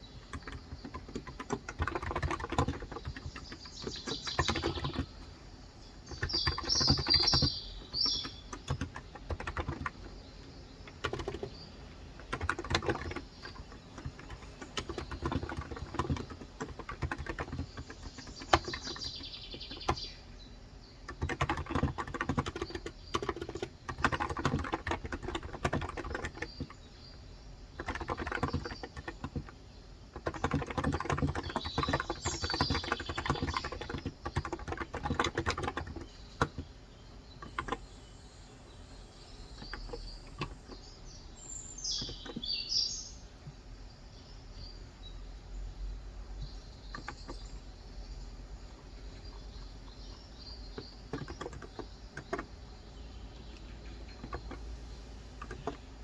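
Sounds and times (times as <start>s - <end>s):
keyboard typing: 0.0s - 5.4s, 6.0s - 20.2s, 21.0s - 26.9s, 27.7s - 36.7s, 37.3s - 38.0s, 39.5s - 40.9s, 41.9s - 42.6s, 46.4s - 47.6s, 49.2s - 52.8s, 53.4s - 56.0s
birds chirping: 0.0s - 56.0s.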